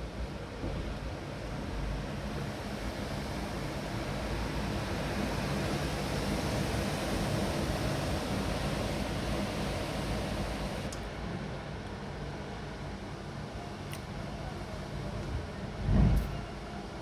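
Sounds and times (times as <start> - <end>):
storm wind: 15.3 - 16.7
wind buffeting microphone: 15.4 - 16.6.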